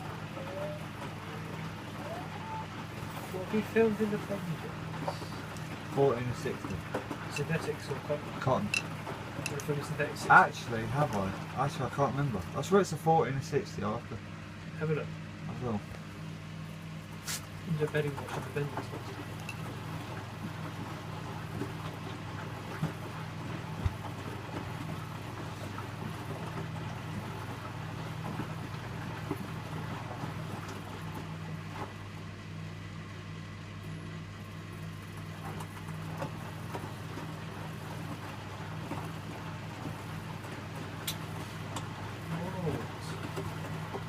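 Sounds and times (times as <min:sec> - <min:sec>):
washing machine humming: 0:00.0 - 0:44.0.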